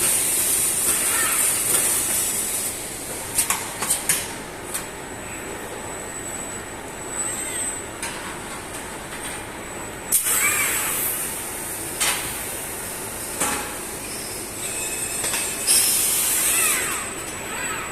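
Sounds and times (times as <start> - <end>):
compressed air hiss: 15.7 - 16.6.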